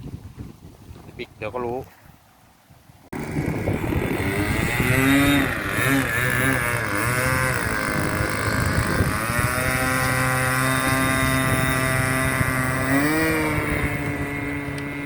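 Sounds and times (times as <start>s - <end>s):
model airplane engine running: 3.2s - 15.0s.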